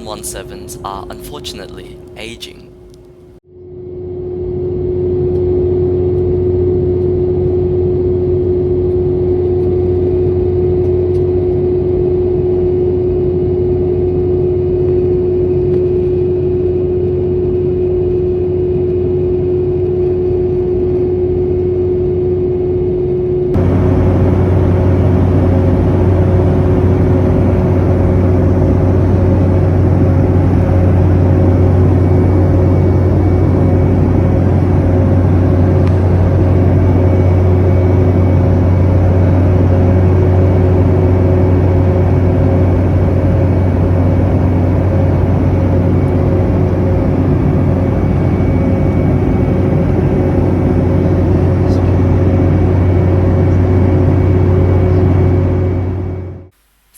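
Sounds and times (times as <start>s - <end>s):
jet engines low hum: 0.0s - 56.5s
airflow rush in cabin: 23.6s - 56.5s
faint steady tones: 23.6s - 56.9s.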